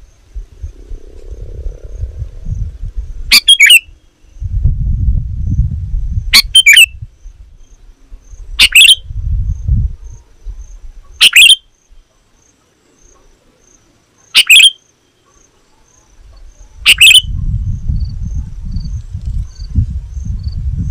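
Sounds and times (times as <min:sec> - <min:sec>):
low rumble: 0:00.2 - 0:03.3
bird calling: 0:03.3 - 0:04.4, 0:06.4 - 0:06.9, 0:08.6 - 0:09.0, 0:10.5 - 0:13.6, 0:14.2 - 0:17.3.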